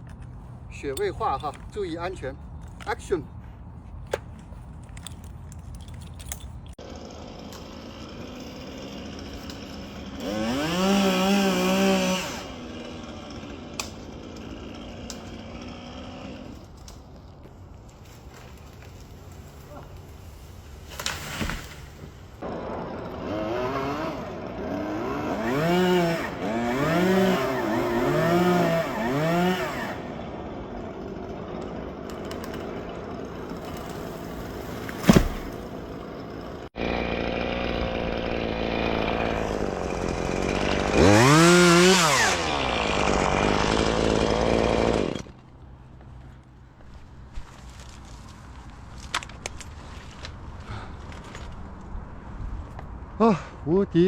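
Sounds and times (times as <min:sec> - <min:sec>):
chainsaw engine revving: 0:06.8 - 0:16.7, 0:22.4 - 0:45.4.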